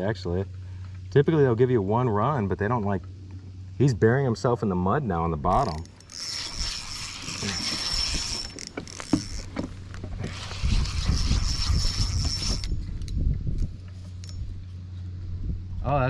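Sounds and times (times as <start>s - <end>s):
fishing reel whirring: 5.5s - 14.6s.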